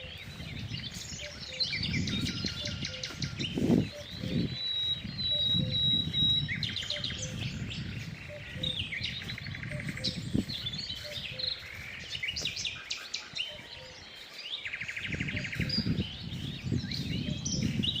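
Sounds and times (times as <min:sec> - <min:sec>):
fast bird trills: 0:00.0 - 0:11.9
songbirds singing and chirping: 0:00.0 - 0:18.0.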